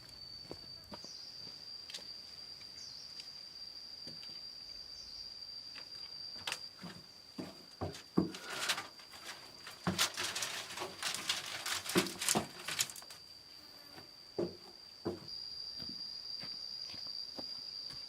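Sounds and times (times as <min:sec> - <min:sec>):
high insect drone: 0:00.0 - 0:18.0
close knocks and rustles: 0:06.8 - 0:13.2.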